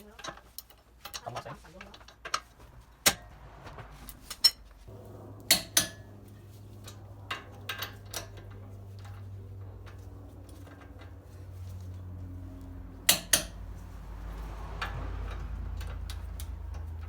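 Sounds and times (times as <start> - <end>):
steady low hum: 2.5 - 17.0
metal tools clinking: 5.2 - 17.0.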